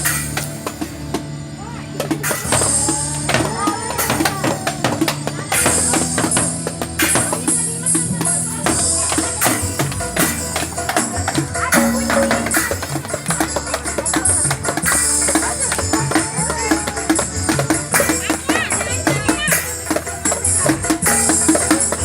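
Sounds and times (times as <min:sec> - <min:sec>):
drums: 0:00.0 - 0:22.0
jingling percussion: 0:02.2 - 0:22.0
live band playing: 0:06.7 - 0:22.0
bass line: 0:11.4 - 0:14.0.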